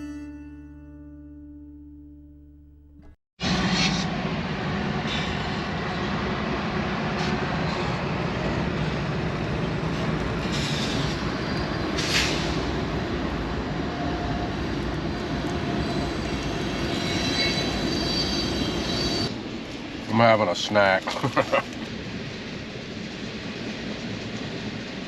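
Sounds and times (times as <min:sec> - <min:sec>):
train rolling past: 0:03.4 - 0:25.0
train wheels squealing: 0:10.4 - 0:12.7, 0:15.7 - 0:19.4.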